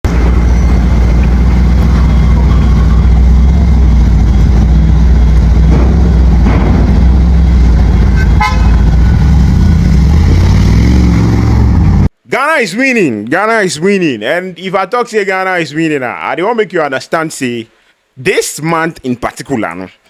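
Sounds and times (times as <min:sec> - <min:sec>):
motor vehicle running: 0:00.0 - 0:12.1
short horn toot: 0:08.1 - 0:09.2.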